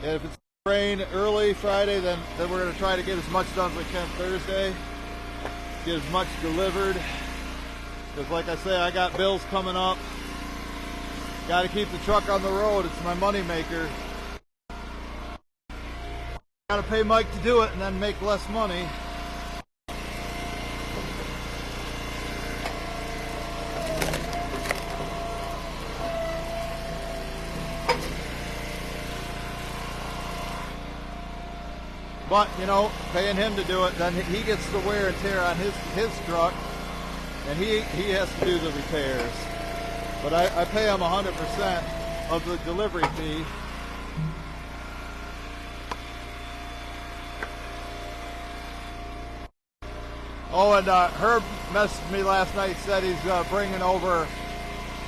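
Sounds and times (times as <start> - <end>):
wood splitter engine running: 0.0 - 55.0
wood cracking as it splits: 23.8 - 25.2.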